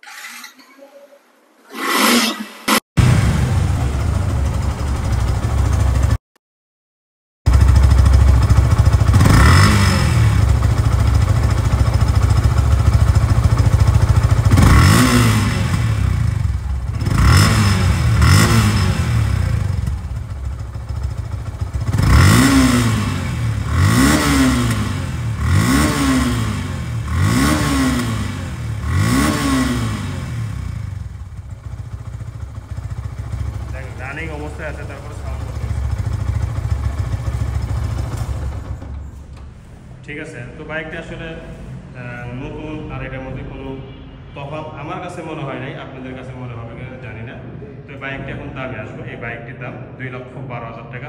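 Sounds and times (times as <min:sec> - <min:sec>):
motorcycle engine revving: 0:01.7 - 0:06.2, 0:07.5 - 0:39.6.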